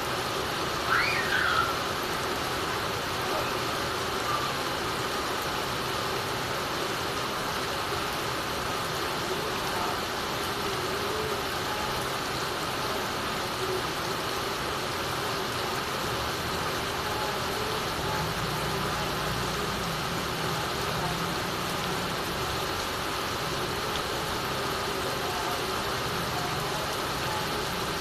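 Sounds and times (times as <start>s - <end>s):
heavy rain falling: 0.0s - 28.0s
water dripping off a roof: 0.1s - 28.0s.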